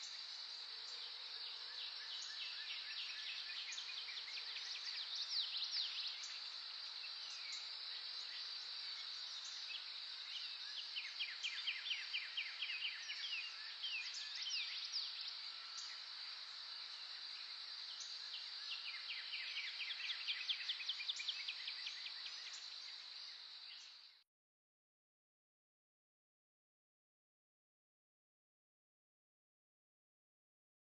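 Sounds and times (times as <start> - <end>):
wild birds singing: 0.0 - 24.2.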